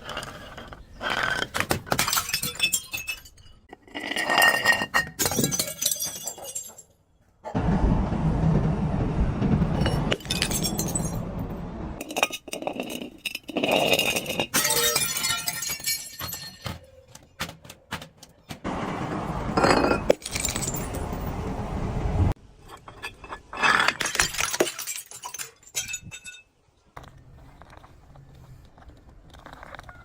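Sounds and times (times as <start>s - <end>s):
glass bottles breaking: 1.7s - 7.0s, 9.9s - 11.2s, 13.2s - 16.9s, 19.6s - 21.3s, 23.2s - 26.6s.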